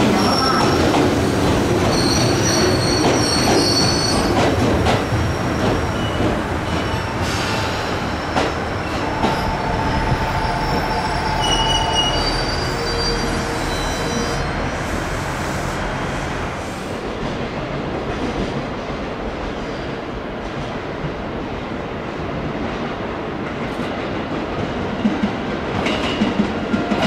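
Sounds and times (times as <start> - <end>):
wheel and brake squeals: 1.9 - 4.3, 10.3 - 14.6.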